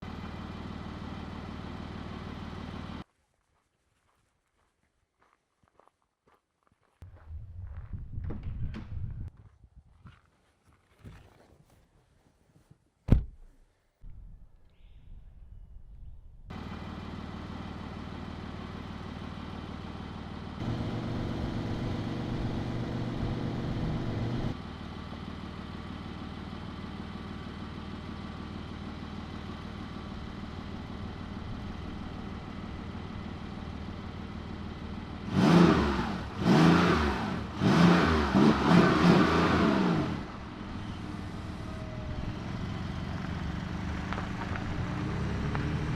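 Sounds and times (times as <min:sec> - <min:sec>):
car engine idling and revving: 0:00.0 - 0:03.0, 0:16.5 - 0:45.9.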